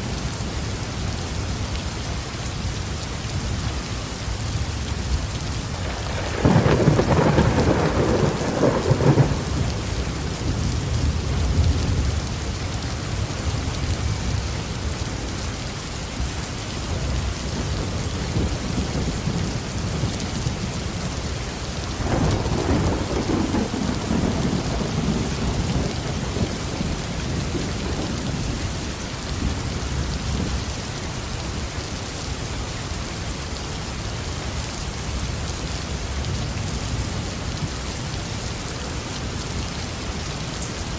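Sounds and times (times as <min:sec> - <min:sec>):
heavy rain on a roof: 0:00.0 - 0:40.9
thunder rumbling: 0:05.7 - 0:14.8, 0:16.9 - 0:30.7.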